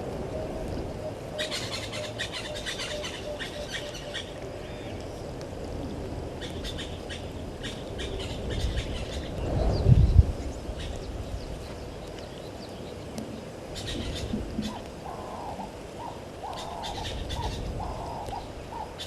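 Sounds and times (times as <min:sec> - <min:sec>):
birds chirping: 0:00.9 - 0:05.3.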